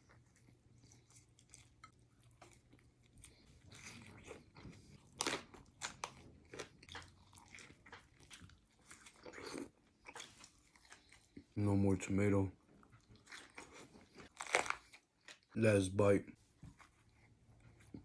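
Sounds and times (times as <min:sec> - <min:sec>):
chewing and biting crunchy food: 0:00.0 - 0:11.6, 0:12.8 - 0:15.6.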